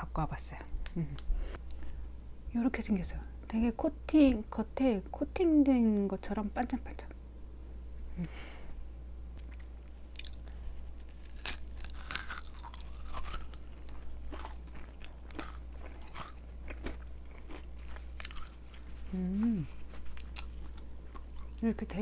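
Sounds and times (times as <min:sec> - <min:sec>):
person chewing crunchy cookie: 0:09.4 - 0:21.6.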